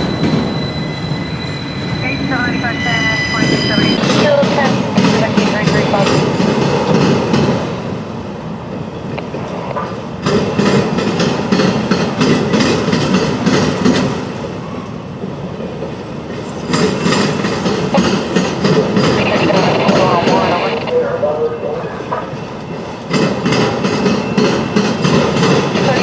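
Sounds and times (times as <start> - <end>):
train wheels clacking on track: 3.4 - 7.8, 9.1 - 14.4, 15.7 - 20.4, 22.2 - 26.0.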